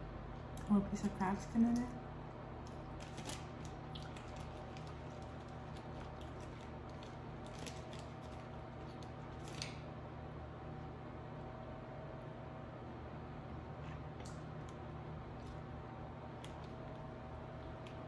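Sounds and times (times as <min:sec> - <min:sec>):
steady low hum: 0:00.0 - 0:18.0
crisp clicks of chewing seafood: 0:02.6 - 0:09.8, 0:14.2 - 0:15.7, 0:16.3 - 0:18.0.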